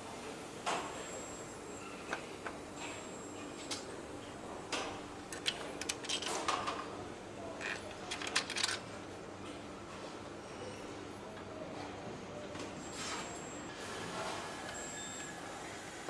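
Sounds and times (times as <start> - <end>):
factory machinery hum: 0.0 - 16.0
metal parts and tools clinking: 5.3 - 6.7.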